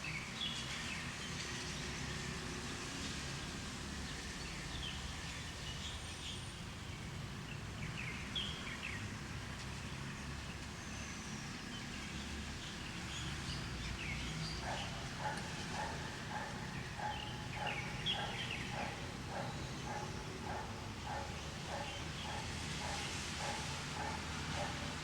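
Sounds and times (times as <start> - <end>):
birds chirping: 13.5 - 25.0
lower repeated bird call: 14.7 - 25.0.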